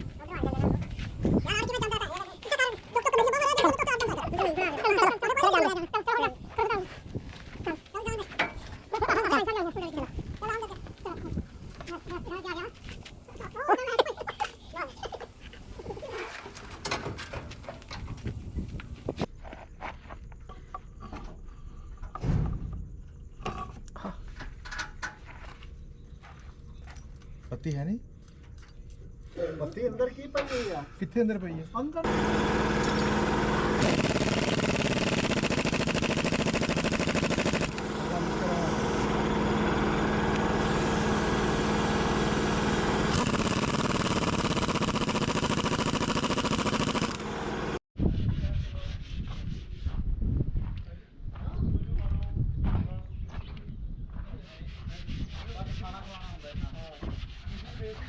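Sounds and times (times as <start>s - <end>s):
engine running: 32.0s - 47.8s.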